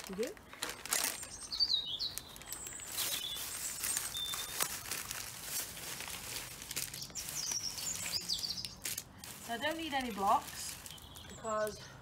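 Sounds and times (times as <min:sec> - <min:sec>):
plastic packaging crinkling: 0:00.0 - 0:11.3
wild bird chirps: 0:01.1 - 0:04.6, 0:06.9 - 0:08.9.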